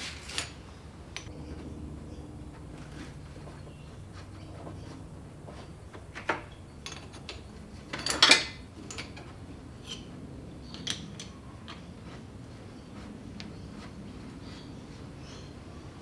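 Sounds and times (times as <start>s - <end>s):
metal tools clinking: 6.4s - 10.1s.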